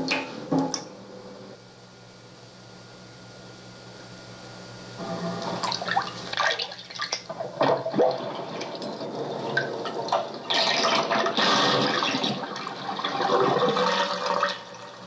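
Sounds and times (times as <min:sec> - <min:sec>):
tape hiss: 0:00.0 - 0:06.4.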